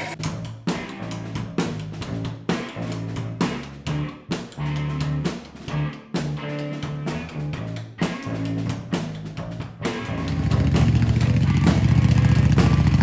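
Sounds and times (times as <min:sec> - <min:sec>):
music with drums and guitar: 0:00.0 - 0:13.0
motorcycle engine running: 0:10.0 - 0:13.0.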